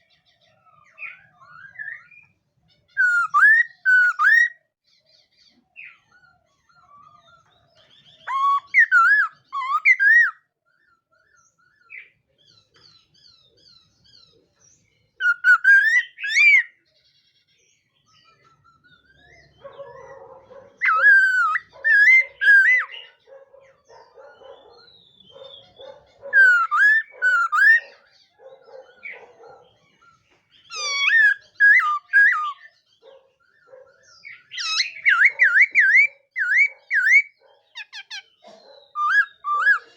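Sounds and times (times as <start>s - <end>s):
soft low bird chatter: 0.0s - 39.9s
bird singing looping whistles: 3.0s - 4.6s, 8.2s - 10.4s, 15.2s - 16.7s, 20.8s - 23.2s, 25.0s - 28.0s, 30.7s - 32.7s, 34.3s - 38.2s, 38.9s - 39.9s.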